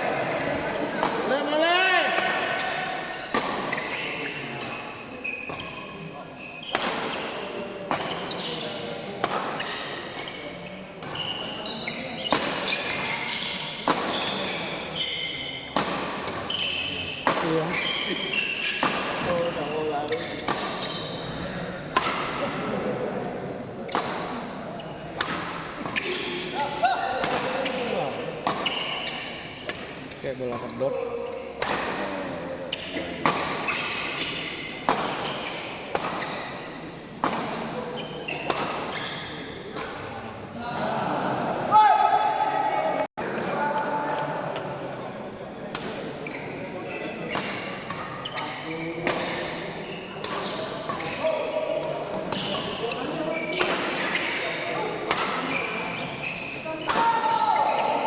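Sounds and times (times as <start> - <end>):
racket hitting shuttlecock: 1.0 - 1.3, 2.1 - 4.8, 6.6 - 10.4, 11.0 - 21.0, 21.9 - 22.6, 23.9 - 24.5, 25.2 - 30.7, 31.3 - 32.1, 32.7 - 40.2, 47.2 - 58.0
shoe squeaks on court: 3.1 - 7.4, 8.0 - 9.0, 9.6 - 15.6, 16.4 - 21.5, 27.6 - 31.6, 32.7 - 36.6, 37.9 - 39.4, 46.2 - 51.5, 52.3 - 54.5, 55.1 - 57.0.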